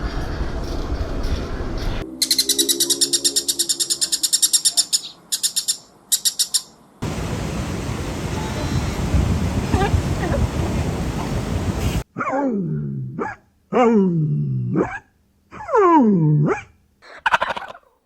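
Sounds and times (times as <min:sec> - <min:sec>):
bird chirping trills: 0:01.8 - 0:12.0
noisy background hiss: 0:04.9 - 0:12.0.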